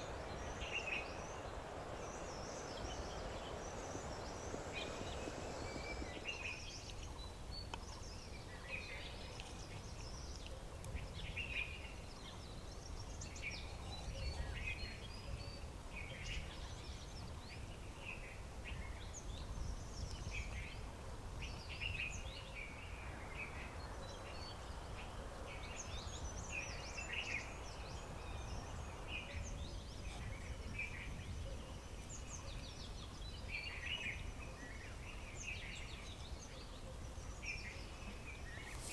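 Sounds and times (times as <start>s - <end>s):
low outdoor rumble: 0.0s - 7.6s
small birds chirping: 0.0s - 38.9s.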